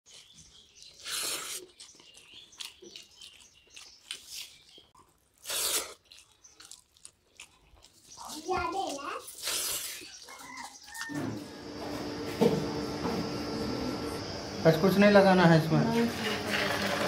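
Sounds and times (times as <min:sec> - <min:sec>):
chewing: 0:00.1 - 0:11.2
small crunches: 0:00.1 - 0:11.2
mouth smacks: 0:05.4 - 0:06.8.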